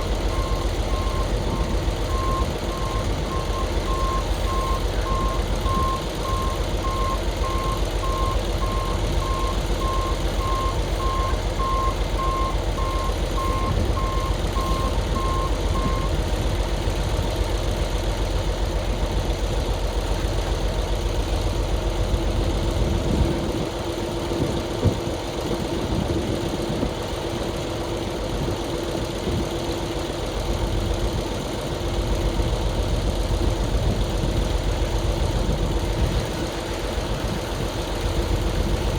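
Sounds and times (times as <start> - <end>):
reversing alarm beeping: 0.0 - 16.2
truck engine running: 0.0 - 38.9.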